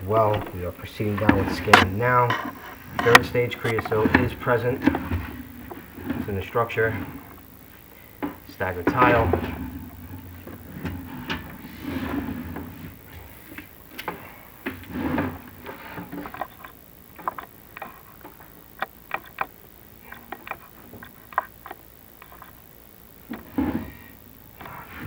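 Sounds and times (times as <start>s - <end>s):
sharp irregular clicks and taps: 1.2s - 3.9s, 16.2s - 22.6s
cable scraping against flue tile: 1.2s - 4.3s, 14.8s - 22.6s.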